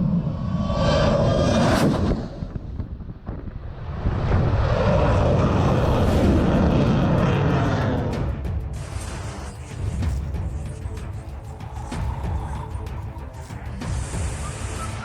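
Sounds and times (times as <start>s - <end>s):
loud engine roar: 3.8s - 13.1s.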